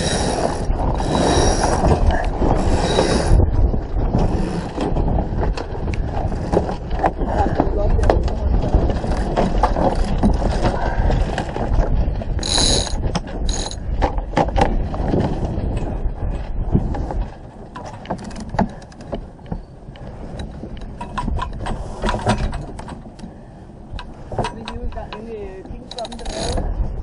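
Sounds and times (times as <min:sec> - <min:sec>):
wind rumble on microphone: 0:00.0 - 0:27.0
deck gear clicks and clinks: 0:12.4 - 0:14.6, 0:17.8 - 0:23.3, 0:23.9 - 0:26.6.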